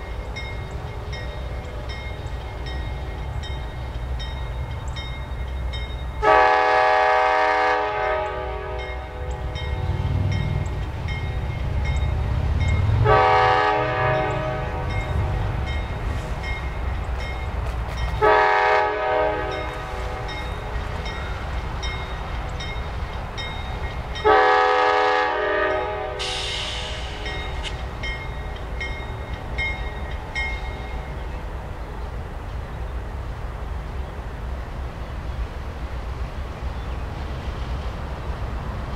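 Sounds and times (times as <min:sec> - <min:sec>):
low rumble of passing train: 0:00.0 - 0:38.9
locomotive air horn blasts: 0:06.2 - 0:09.3, 0:13.0 - 0:15.3, 0:18.2 - 0:20.3, 0:24.2 - 0:27.2.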